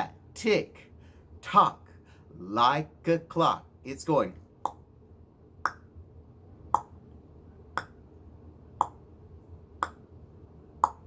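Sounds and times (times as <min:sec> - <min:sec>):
tongue clicks: 0:06.7 - 0:06.9, 0:07.8 - 0:08.0, 0:08.8 - 0:09.0, 0:09.8 - 0:10.0.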